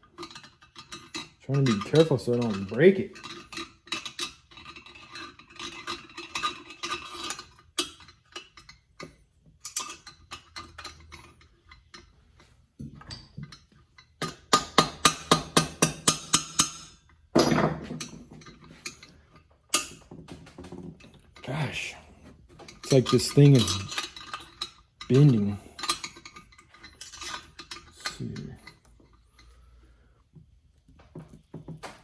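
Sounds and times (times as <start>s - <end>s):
tools knocking on metal and plastic: 20.1s - 21.1s, 31.0s - 32.0s.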